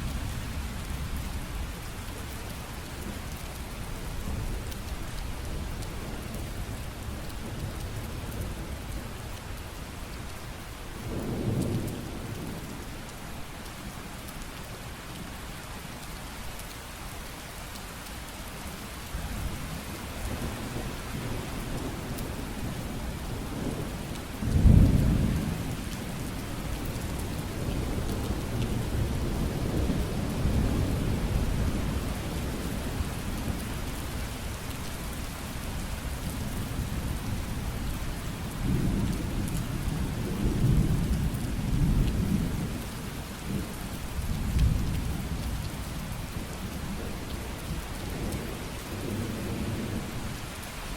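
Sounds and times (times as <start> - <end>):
heavy rain: 0.0 - 50.9.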